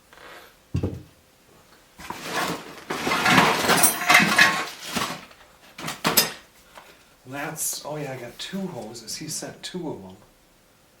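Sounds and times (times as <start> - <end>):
metal parts clattering: 2.3 - 6.4.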